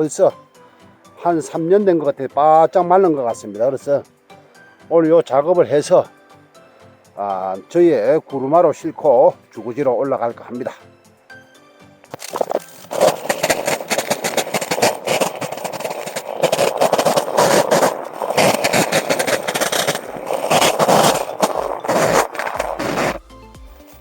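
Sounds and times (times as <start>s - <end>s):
chainsaw cutting log: 12.2s - 23.2s.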